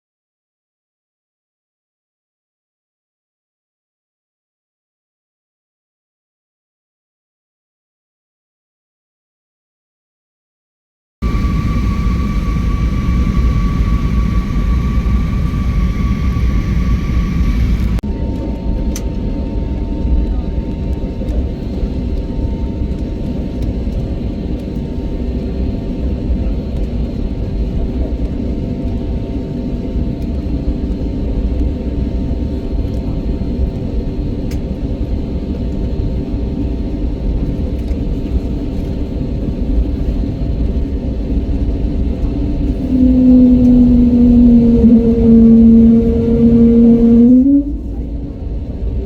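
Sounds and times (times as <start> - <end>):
vehicle engine rumble: 40.7 - 49.0
steady hum: 41.4 - 48.4
two-note drone: 42.4 - 48.0.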